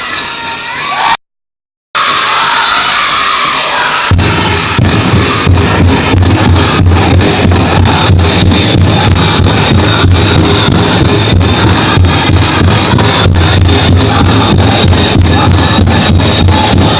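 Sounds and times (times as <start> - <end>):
people singing: 2.6 - 16.9
big drum beating fast: 4.1 - 16.9.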